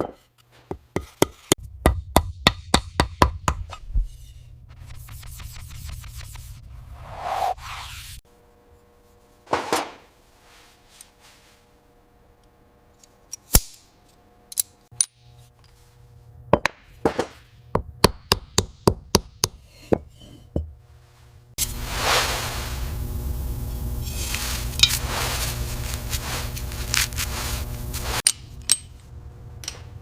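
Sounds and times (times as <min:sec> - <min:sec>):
brief swish: 0:06.8 - 0:08.2.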